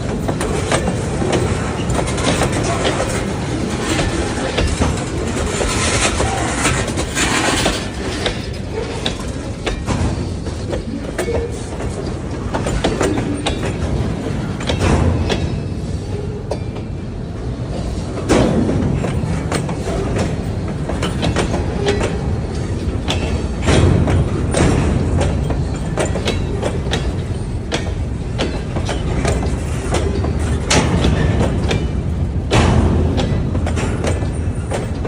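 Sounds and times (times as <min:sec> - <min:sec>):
freight train rumbling past: 0:00.0 - 0:35.0
wheels clacking over rail joints: 0:00.0 - 0:35.0.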